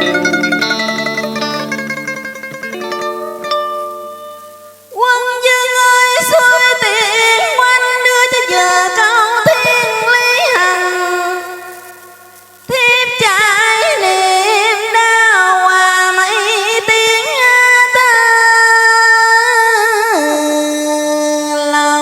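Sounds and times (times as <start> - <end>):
melody with vibrato: 0.0 - 4.8
plucked string notes: 0.0 - 4.9.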